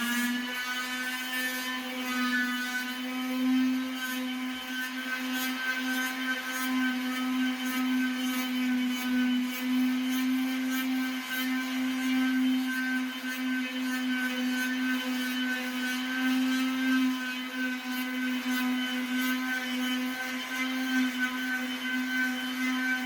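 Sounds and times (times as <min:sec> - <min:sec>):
floor sander motor whine: 0:00.0 - 0:23.0
scratchy grit noise: 0:00.0 - 0:23.0.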